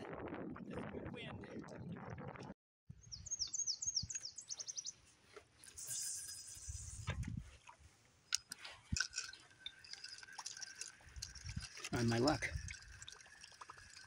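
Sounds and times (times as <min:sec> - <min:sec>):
small songbird singing: 0:03.0 - 0:05.0.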